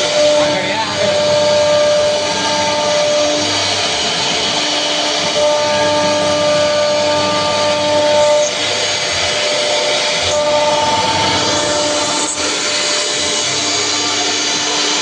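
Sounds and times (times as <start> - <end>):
cnc router cutting wood: 0.0 - 15.0
high whine: 0.0 - 15.0.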